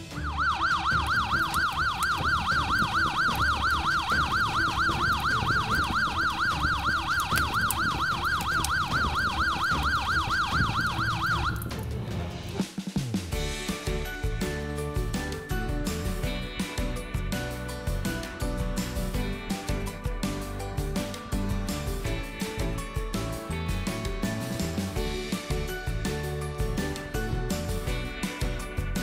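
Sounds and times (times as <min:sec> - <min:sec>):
fire engine siren wailing: 0:00.0 - 0:11.8.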